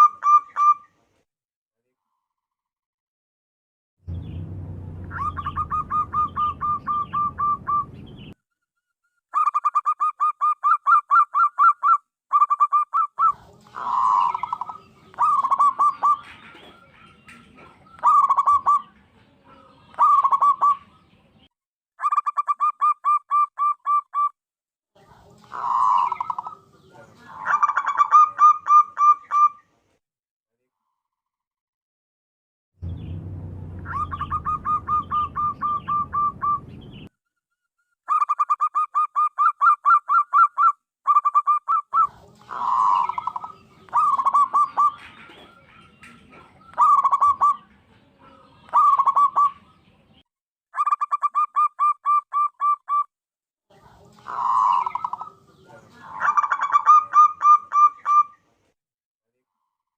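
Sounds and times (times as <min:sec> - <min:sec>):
dove rapid staccato cooing: 0:05.1 - 0:07.8, 0:09.4 - 0:21.0, 0:33.9 - 0:36.6, 0:38.1 - 0:49.7, 0:54.2 - 0:58.3.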